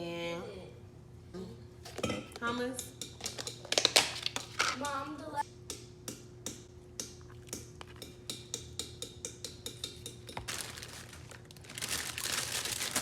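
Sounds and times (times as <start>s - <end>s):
spoon scraping and tapping container: 7.4s - 10.5s.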